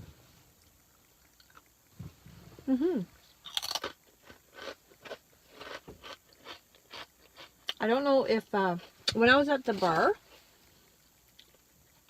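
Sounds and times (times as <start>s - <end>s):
person humming: 2.6s - 3.1s
crunching potato chip: 3.4s - 7.8s.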